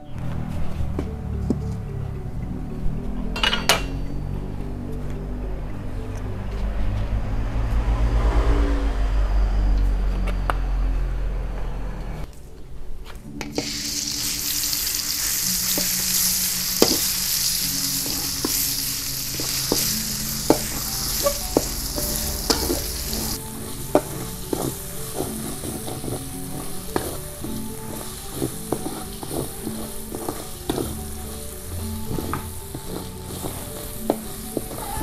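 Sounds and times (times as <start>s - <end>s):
paste sizzling in hot oil: 13.4s - 35.0s
metal spatula scraping a wok: 13.6s - 35.0s.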